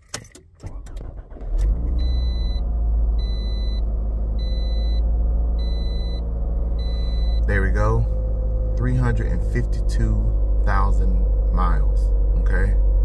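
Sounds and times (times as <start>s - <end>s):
car engine starting and idling: 0.0s - 13.0s
dashboard warning chime: 4.4s - 5.0s, 6.8s - 7.5s.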